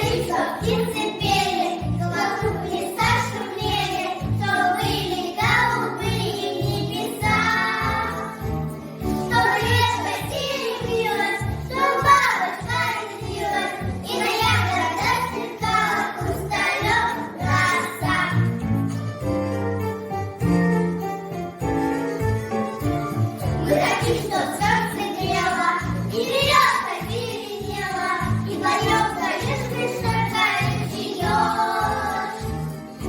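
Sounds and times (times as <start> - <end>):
children singing: 0.0 - 18.6, 23.4 - 33.0.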